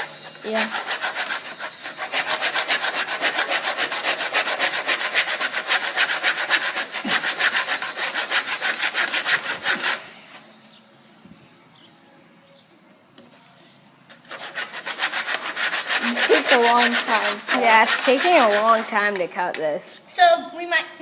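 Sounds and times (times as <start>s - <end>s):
handsaw cutting wood: 0.0s - 10.0s, 14.3s - 19.2s.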